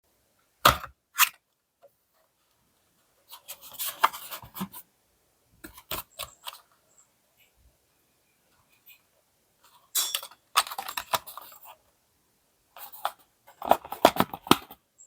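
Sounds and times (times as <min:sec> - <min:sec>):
packaging rustling and scraping: 0:03.3 - 0:04.8, 0:10.6 - 0:11.8, 0:12.8 - 0:14.8
packaging clicks: 0:10.6 - 0:11.6.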